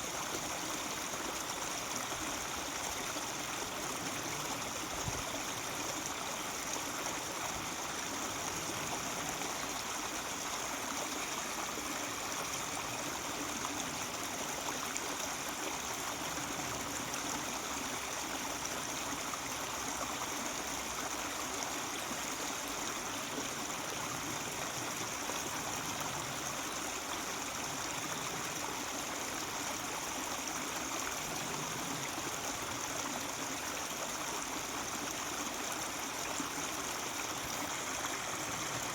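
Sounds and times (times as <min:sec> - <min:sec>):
stream running over rocks: 0:00.0 - 0:38.9.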